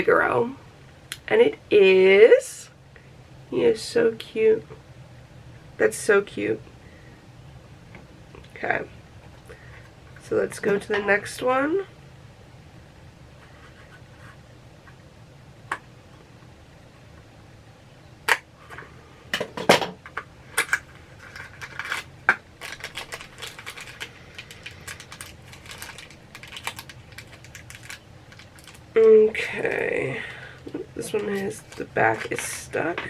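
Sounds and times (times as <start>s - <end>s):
packaging clicks and crackles: 20.6s - 29.0s.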